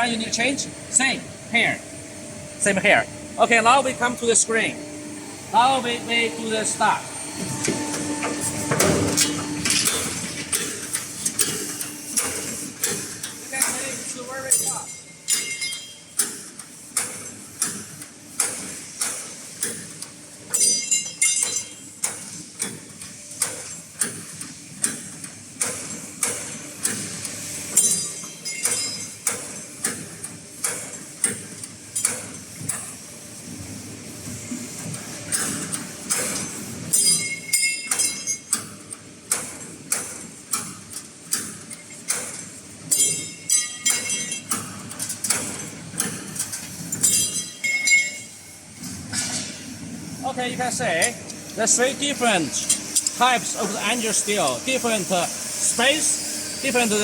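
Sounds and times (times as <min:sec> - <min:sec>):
higher whirring sound: 0:00.2 - 0:10.2
punching machine striking metal: 0:05.6 - 0:17.8, 0:27.7 - 0:32.4, 0:35.4 - 0:40.8, 0:41.4 - 0:49.7.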